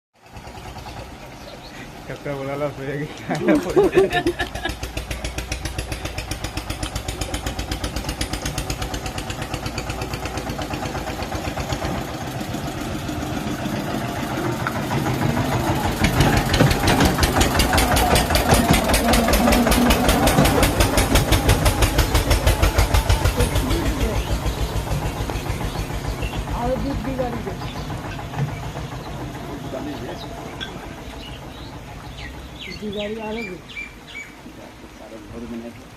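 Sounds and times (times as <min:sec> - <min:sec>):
tractor diesel engine chugging: 0:00.2 - 0:34.4.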